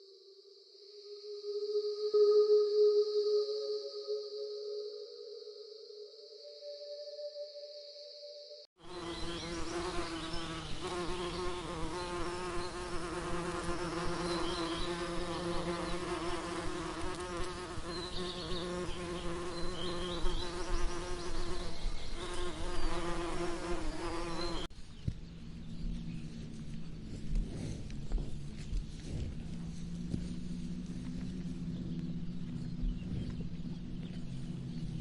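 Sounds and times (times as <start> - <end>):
bees buzzing: 8.8 - 24.7.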